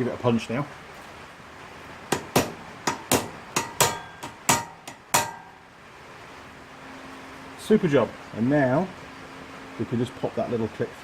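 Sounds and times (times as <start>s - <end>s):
hammer striking metal punch: 2.1s - 5.6s.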